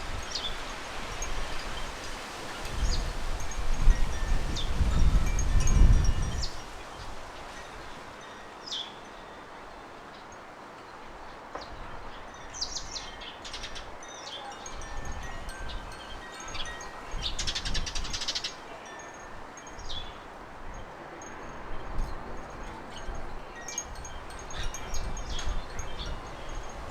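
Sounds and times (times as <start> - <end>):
wind rumbling on microphone: 0.0 - 8.0, 14.7 - 18.5, 19.3 - 26.9
wind chimes ringing: 0.0 - 26.9
birdsong: 8.2 - 10.4, 11.2 - 20.2, 22.4 - 26.8.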